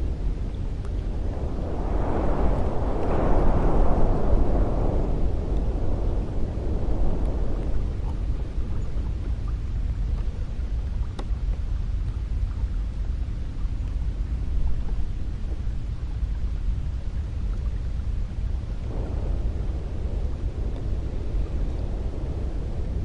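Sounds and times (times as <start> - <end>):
wind rumbling rush: 0.0 - 23.0.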